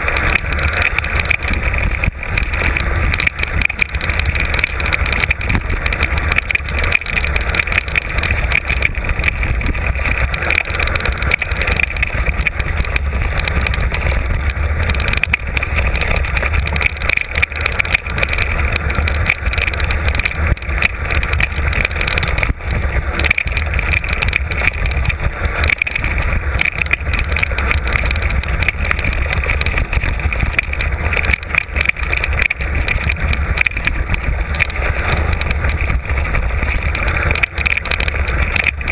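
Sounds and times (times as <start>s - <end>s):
bike rattling over rough ground: 0.0s - 38.9s
wind buffeting microphone: 0.0s - 38.9s.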